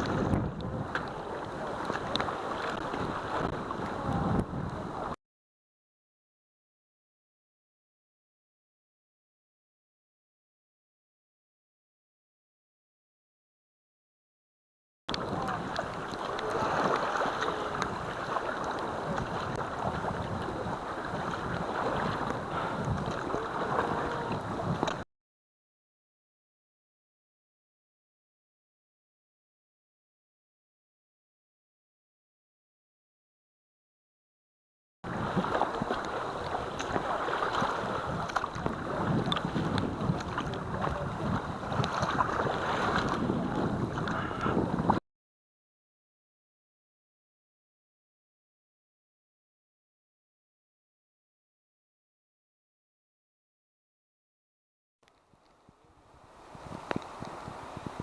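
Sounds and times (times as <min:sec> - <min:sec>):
paddling water noise: 0:00.0 - 0:05.2, 0:15.1 - 0:25.0, 0:35.1 - 0:45.0, 0:55.0 - 0:58.0
wind buffeting microphone: 0:00.0 - 0:05.2, 0:15.1 - 0:25.0, 0:35.1 - 0:45.0, 0:55.6 - 0:58.0
small ticks of water: 0:01.8 - 0:03.6, 0:36.8 - 0:41.0, 0:55.0 - 0:55.8, 0:56.6 - 0:57.6.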